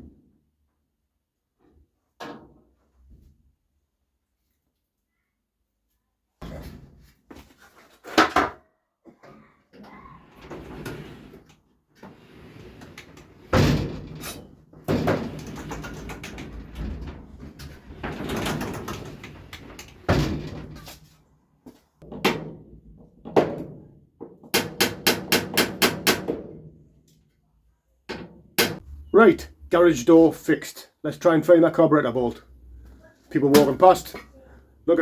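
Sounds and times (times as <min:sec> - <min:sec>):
knocks and bangs on garage door: 0:12.3 - 0:21.0, 0:22.0 - 0:26.9.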